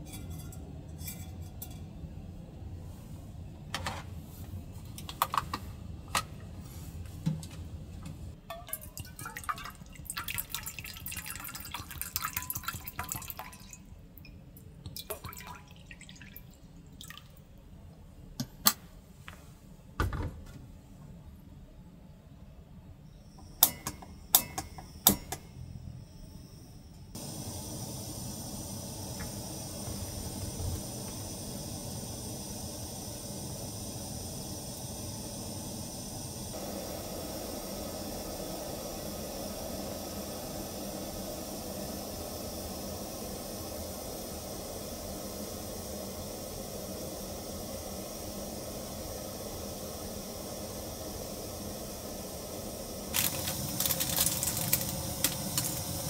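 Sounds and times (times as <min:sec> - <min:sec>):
liquid trickling: 0:08.6 - 0:13.9, 0:14.9 - 0:17.4, 0:53.2 - 0:55.9
steady hiss: 0:23.0 - 0:56.0
objects clinking and knocking: 0:53.2 - 0:56.0.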